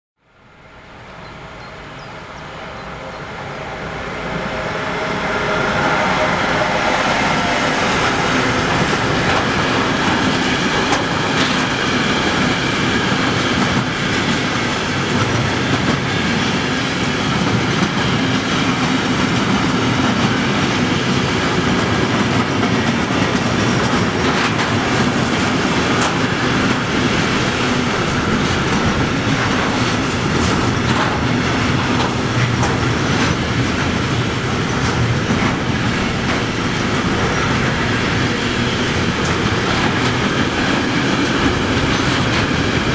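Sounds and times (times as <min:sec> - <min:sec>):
freight train rumbling past: 0:00.2 - 0:42.9
wheels clacking over rail joints: 0:06.4 - 0:16.5, 0:21.4 - 0:42.9.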